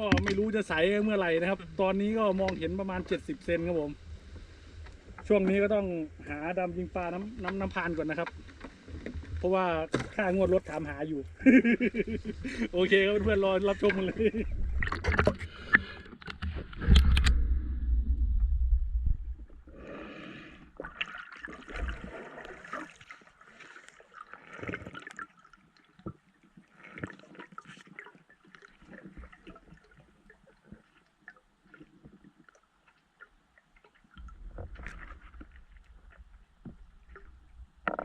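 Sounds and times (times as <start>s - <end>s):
small clicks underwater: 0.0s - 0.7s, 2.4s - 3.5s, 14.7s - 17.5s
low rumble of water: 0.0s - 38.0s
underwater gurgling and bubbling: 12.0s - 23.1s
water splash: 12.2s - 19.7s, 20.8s - 26.2s.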